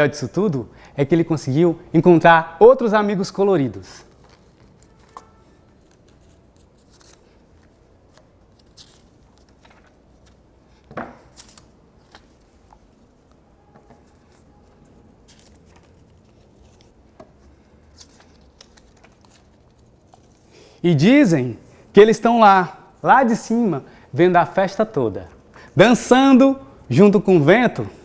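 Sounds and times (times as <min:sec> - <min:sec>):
paper crinkle: 0:03.9 - 0:10.5, 0:14.0 - 0:20.5
paper rustling: 0:03.9 - 0:20.5.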